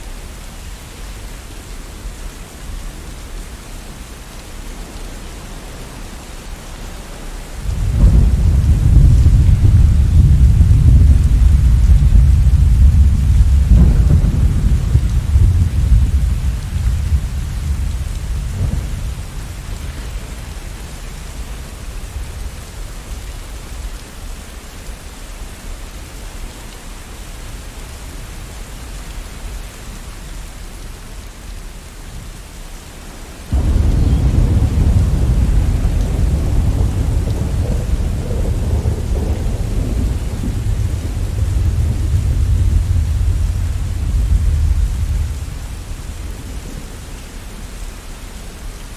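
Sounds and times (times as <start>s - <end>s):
steady rain: 0.0s - 48.9s
thunder rumbling: 7.6s - 22.6s, 33.5s - 47.6s.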